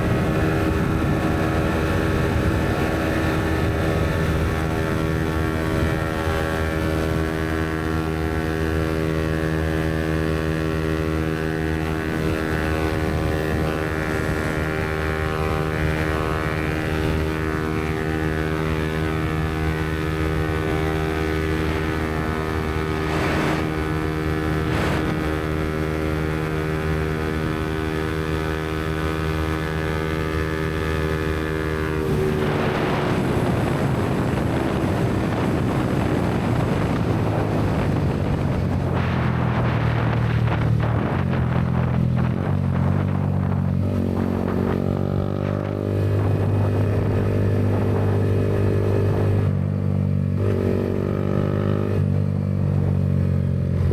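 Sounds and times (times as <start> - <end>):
wind noise: 0.0 - 49.7
motorcycle engine cruising: 0.0 - 53.9.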